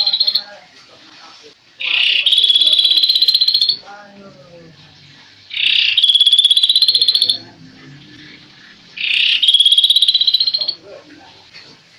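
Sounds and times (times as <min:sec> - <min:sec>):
bird rattling trills: 0:01.9 - 0:03.8, 0:05.5 - 0:07.4, 0:08.2 - 0:10.8.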